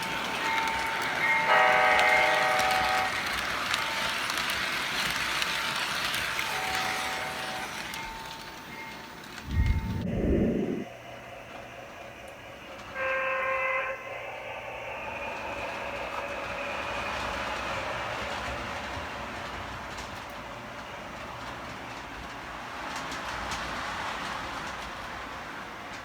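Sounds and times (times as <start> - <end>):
model train running noise: 0.0 - 26.0
model train horn blast: 1.5 - 3.4, 6.5 - 7.8, 13.0 - 14.0.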